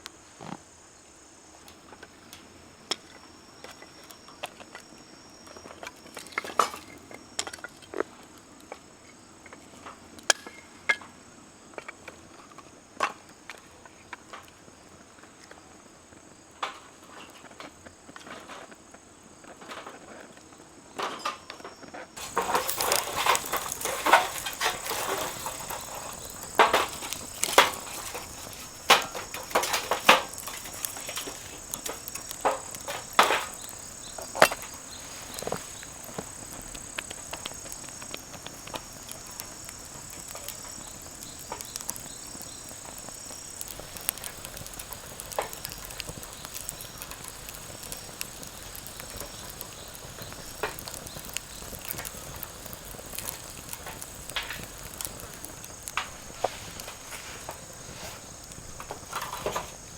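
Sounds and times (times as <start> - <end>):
firewood crackling and popping: 2.0 - 11.1, 16.4 - 19.9, 20.9 - 59.9
high insect trill: 21.1 - 59.9.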